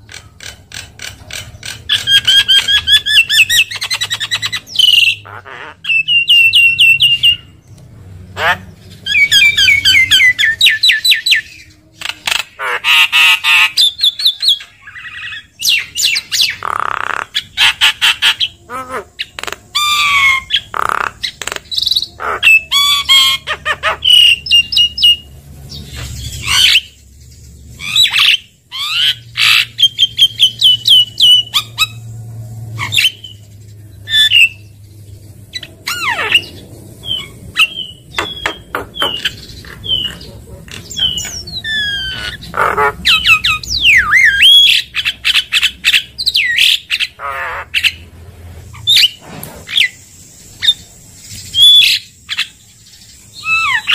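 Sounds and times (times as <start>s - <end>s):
bird singing whistles and squawks: 1.6s - 7.6s, 8.5s - 32.1s, 32.8s - 34.8s, 35.5s - 48.1s, 48.7s - 53.9s.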